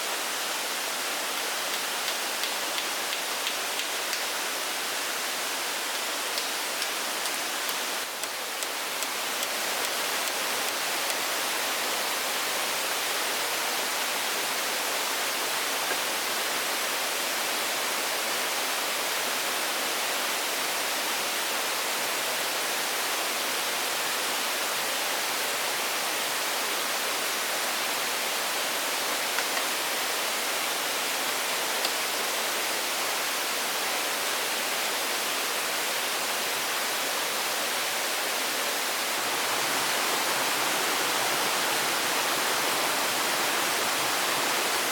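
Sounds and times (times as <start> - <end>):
steady rushing hiss: 0.0 - 13.8, 37.2 - 44.9.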